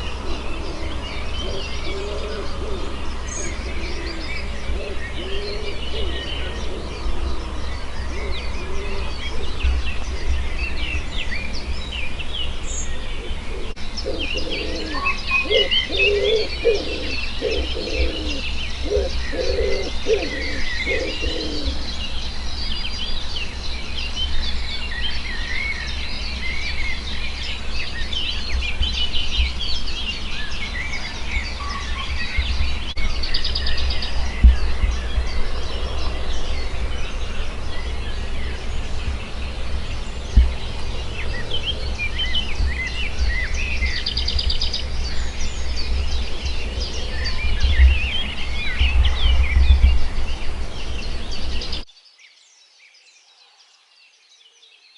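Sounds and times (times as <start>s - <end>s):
low cooing call: 0.0s - 10.3s, 13.0s - 21.9s
steady low rumble: 0.0s - 16.0s, 20.0s - 51.9s
songbirds chirping and trilling: 0.0s - 54.9s.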